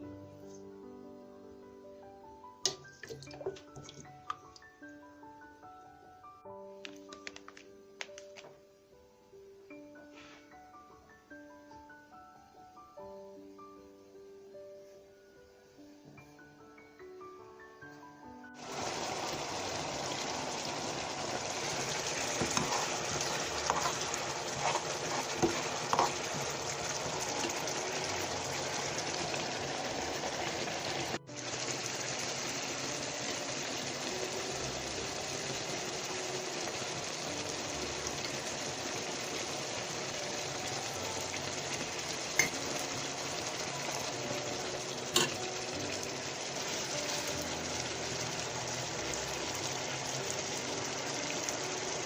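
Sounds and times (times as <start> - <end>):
food sizzling in a frying pan: 18.6 - 52.0.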